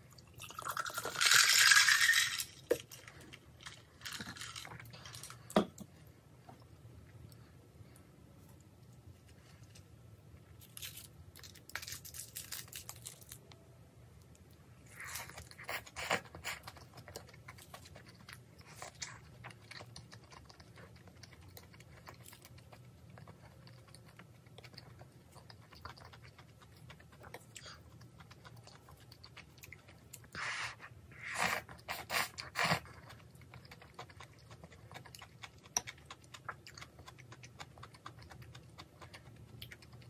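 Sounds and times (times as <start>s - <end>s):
person chewing and crunching: 14.9s - 40.0s.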